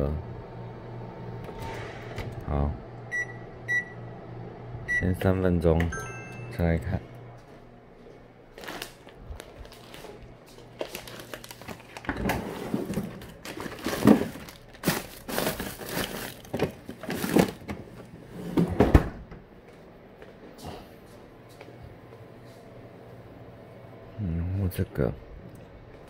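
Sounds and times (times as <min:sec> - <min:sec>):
steady low hum: 0:00.0 - 0:16.4, 0:17.0 - 0:26.0
packaging crinkling: 0:08.5 - 0:17.7.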